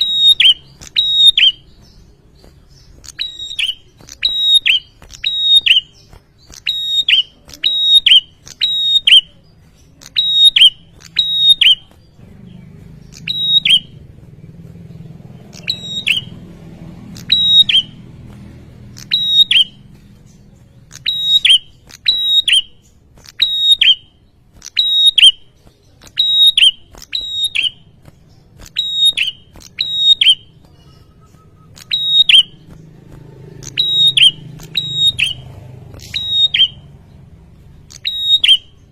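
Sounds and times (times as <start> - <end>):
bird calling sharp high notes: 17.1 - 18.0, 18.9 - 20.0, 20.9 - 28.0, 28.6 - 32.7, 33.6 - 36.9.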